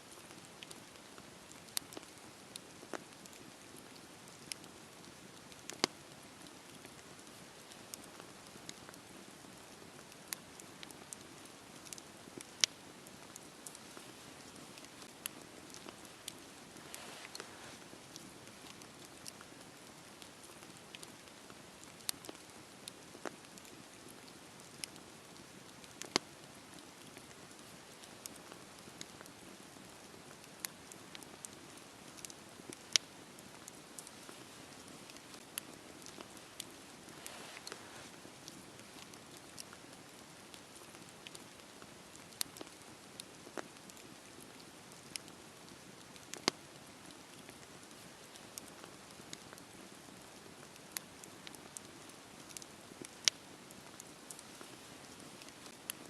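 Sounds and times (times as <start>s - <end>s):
campfire crackling and popping: 0.1s - 56.0s
fire hissing: 13.3s - 19.3s, 35.0s - 38.1s.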